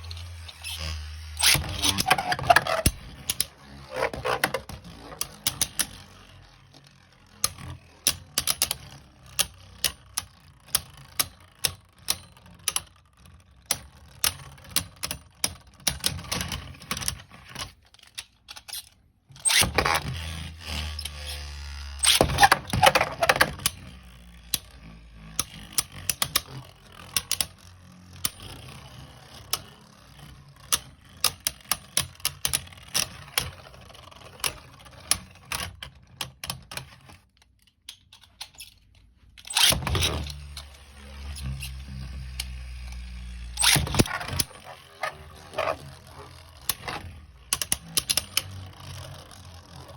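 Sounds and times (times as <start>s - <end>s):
spinning tops whirring and clattering: 0.0s - 8.9s, 39.4s - 49.9s.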